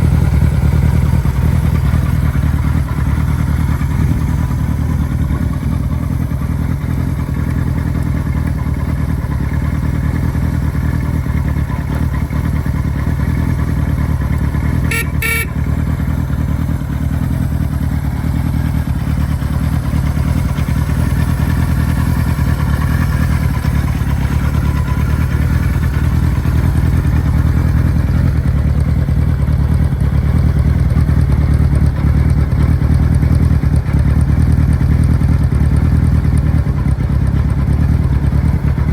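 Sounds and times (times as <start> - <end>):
motorcycle engine idling: 0.0 - 38.9
sharp double sound: 14.9 - 15.5.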